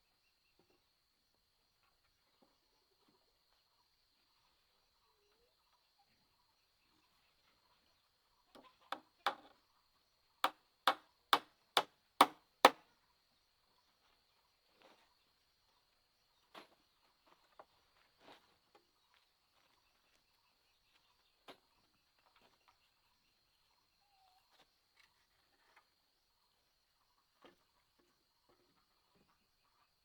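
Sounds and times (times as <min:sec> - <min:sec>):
soft knocks: 0:09.3 - 0:09.5
sharp chopping strikes: 0:12.2 - 0:12.8.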